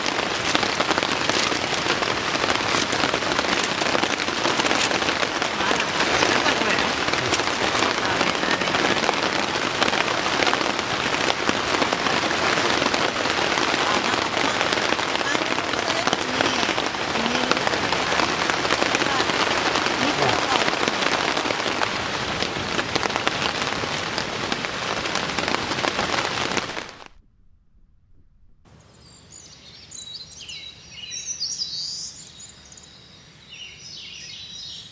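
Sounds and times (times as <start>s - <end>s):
rain drops striking a surface: 0.0s - 27.1s.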